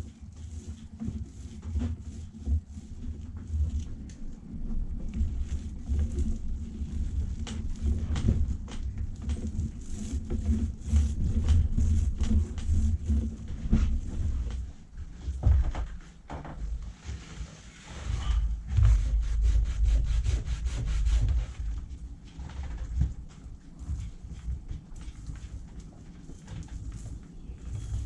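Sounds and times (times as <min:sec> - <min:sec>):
paint applicator rubbing surface: 0:00.0 - 0:14.7, 0:17.1 - 0:21.8, 0:26.4 - 0:28.0.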